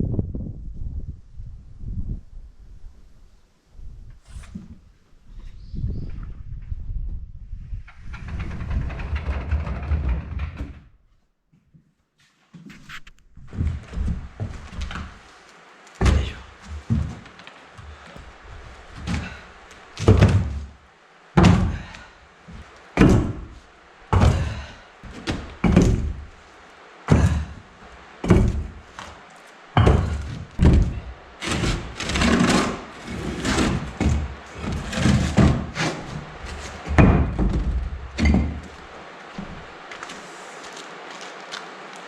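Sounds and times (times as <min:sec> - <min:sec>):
heavy clunks of bricks set down: 0:18.9 - 0:20.8, 0:21.4 - 0:26.3, 0:27.1 - 0:27.6, 0:28.2 - 0:29.2, 0:29.8 - 0:38.8.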